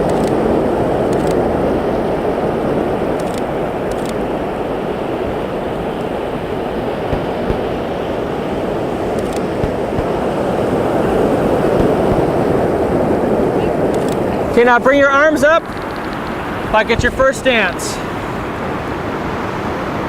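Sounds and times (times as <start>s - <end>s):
faint clicks: 0.0s - 0.4s, 1.1s - 1.4s, 3.2s - 4.2s, 13.9s - 14.4s, 15.6s - 16.6s
ocean surf roaring: 0.0s - 20.0s.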